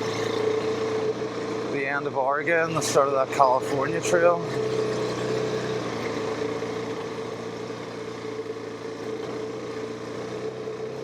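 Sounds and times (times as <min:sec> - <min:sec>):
motorcycle engine climbing: 0:00.0 - 0:08.3.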